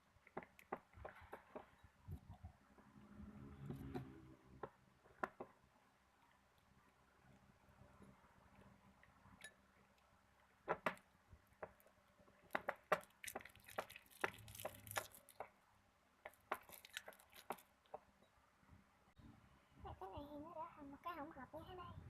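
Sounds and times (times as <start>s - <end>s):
slime being stirred in a bowl: 12.4s - 15.6s, 16.3s - 18.1s.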